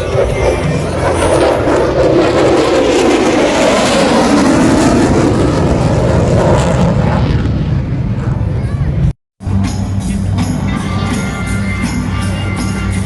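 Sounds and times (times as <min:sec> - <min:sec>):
jet roar passing overhead: 0:00.0 - 0:09.6.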